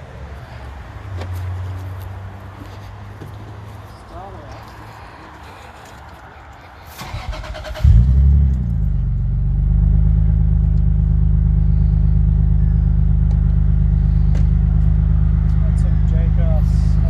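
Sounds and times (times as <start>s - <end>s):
engine starter cranking: 7.0s - 8.3s
car engine idling loudly: 7.9s - 17.0s.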